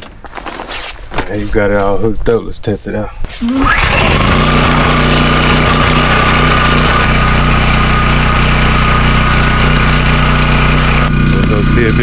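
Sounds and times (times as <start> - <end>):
generator engine running: 3.3 - 12.0.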